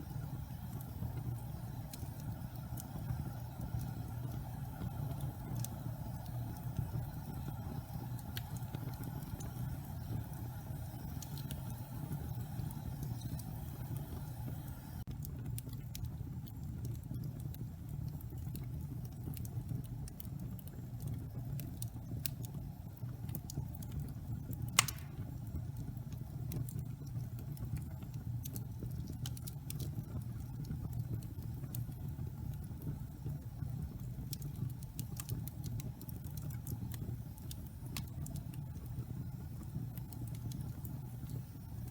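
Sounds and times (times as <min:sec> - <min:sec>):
wood fire crackling: 0:00.0 - 0:41.9
sharp pop from fire: 0:24.8 - 0:25.4.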